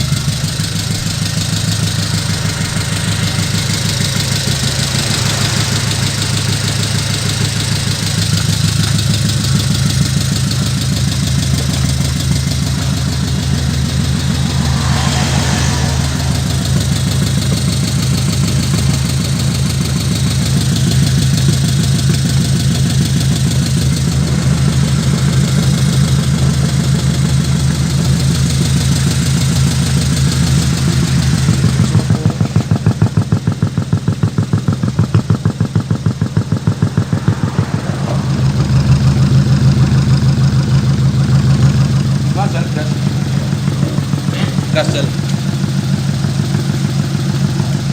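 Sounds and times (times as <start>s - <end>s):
truck engine idling: 0.0s - 47.9s.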